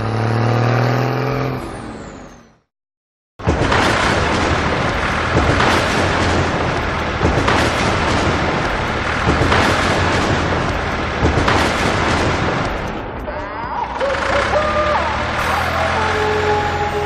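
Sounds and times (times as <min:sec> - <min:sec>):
heavy vehicle machinery rumbling: 0:03.4 - 0:17.0.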